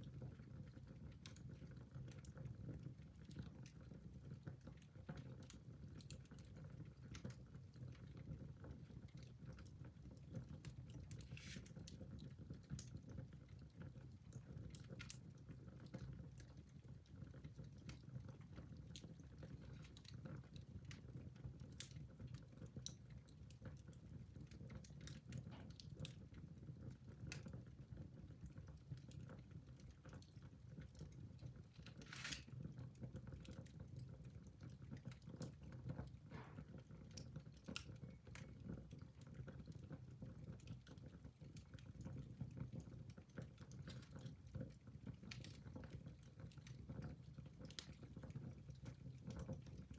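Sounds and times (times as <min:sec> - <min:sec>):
low steady fire rumble: 0:00.0 - 0:49.9
wood fire crackling: 0:00.0 - 0:49.9
fire popping: 0:30.1 - 0:32.9.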